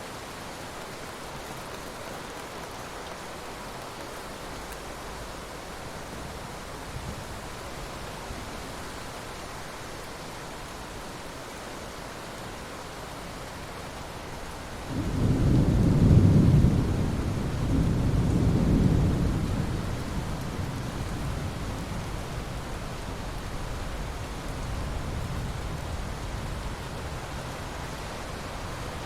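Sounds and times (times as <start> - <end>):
steady rain: 0.0 - 29.0
thunder rumbling: 14.9 - 22.9.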